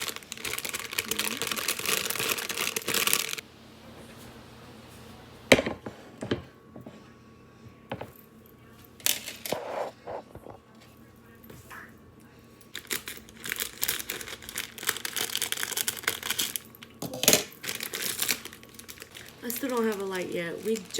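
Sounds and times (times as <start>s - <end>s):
plastic packaging crinkling: 0.0s - 3.4s, 12.7s - 20.9s.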